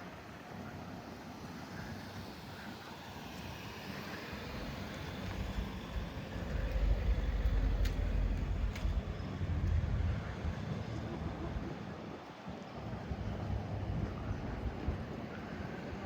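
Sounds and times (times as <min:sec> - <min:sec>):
street hiss: 0:00.0 - 0:10.9
deep rumble: 0:04.5 - 0:11.7
faint ticks: 0:04.9 - 0:09.8.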